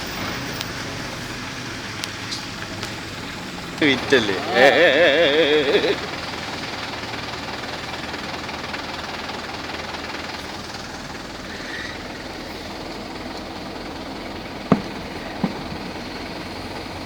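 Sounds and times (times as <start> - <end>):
rain: 0.0 - 3.8
low engine rumble: 0.0 - 17.0
tyres hissing on wet road: 0.0 - 17.0.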